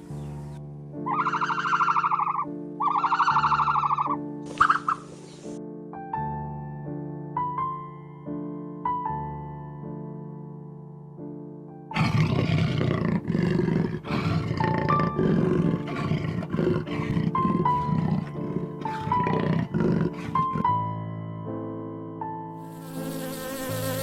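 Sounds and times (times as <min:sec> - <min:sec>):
soft piano music: 0:00.0 - 0:24.0
rough animal vocalisation: 0:12.0 - 0:20.7.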